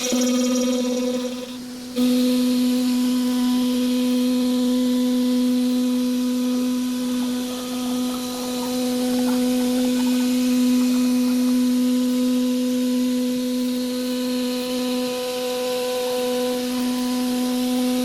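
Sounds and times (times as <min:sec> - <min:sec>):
machining center humming: 0:00.0 - 0:03.9, 0:05.3 - 0:15.3.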